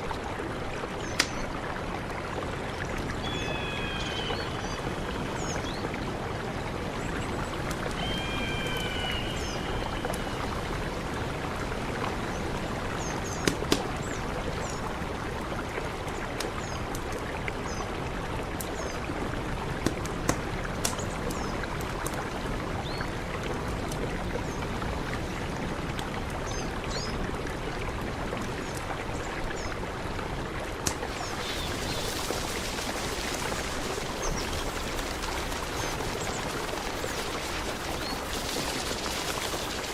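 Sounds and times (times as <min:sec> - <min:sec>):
river rushing: 0:00.0 - 0:16.0, 0:27.6 - 0:39.9
sharp clicks or splashes: 0:01.0 - 0:01.6, 0:13.3 - 0:14.1, 0:19.8 - 0:22.2, 0:30.8 - 0:39.9.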